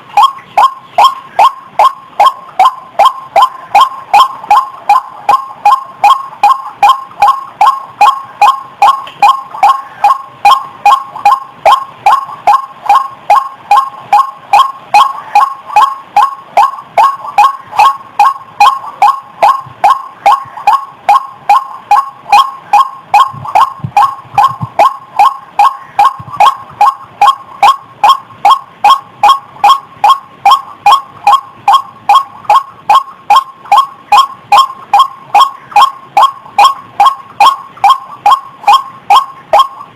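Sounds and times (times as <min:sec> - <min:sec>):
waterhen calling: 0:00.0 - 0:39.9.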